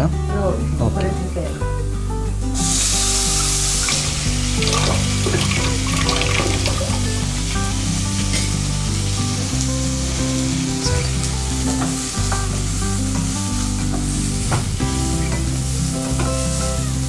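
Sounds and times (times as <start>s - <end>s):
background music: 0.0s - 17.0s
onion and tomato sizzling: 0.5s - 17.0s.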